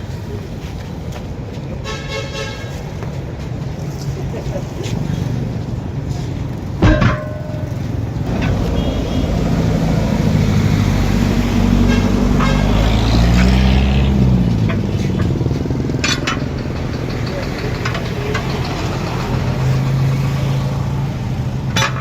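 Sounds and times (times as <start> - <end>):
backhoe engine running: 5.0 - 22.0.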